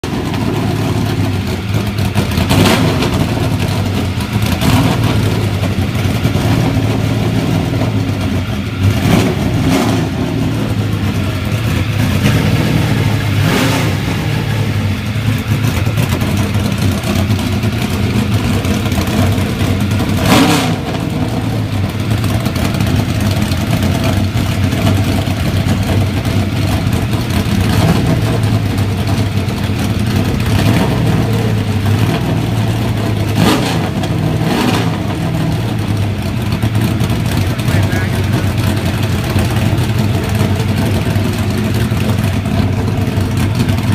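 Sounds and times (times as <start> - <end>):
race car engine idling and revving: 0.0 - 43.9.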